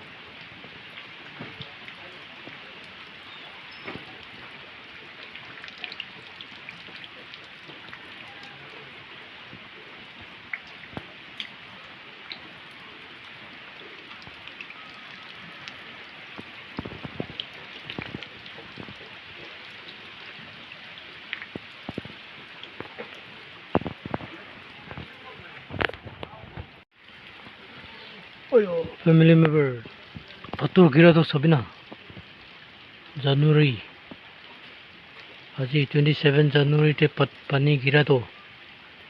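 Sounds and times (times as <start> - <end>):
heavy rain hissing: 0.0 - 39.0.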